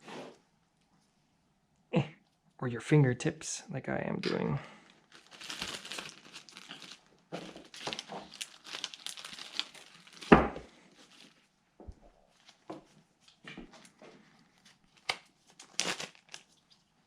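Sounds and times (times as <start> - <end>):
plastic bags crinkling: 4.8 - 11.5, 13.8 - 17.0.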